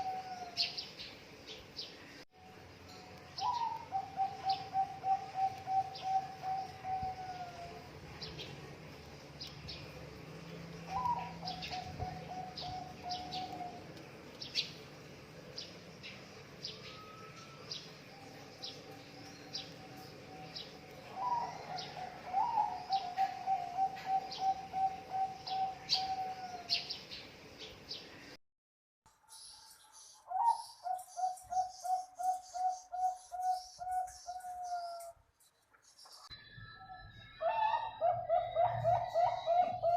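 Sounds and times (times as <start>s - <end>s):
dove cooing: 0.0s - 0.8s, 3.4s - 7.9s, 10.9s - 14.0s, 19.5s - 27.0s, 30.3s - 35.1s, 37.4s - 39.9s.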